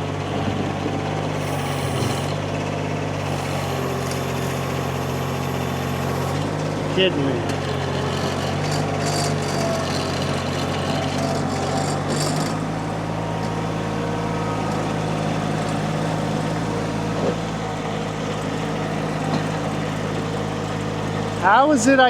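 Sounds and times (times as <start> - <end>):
skid steer engine running: 0.0 - 22.0
hissing squeaky noise: 1.4 - 2.4.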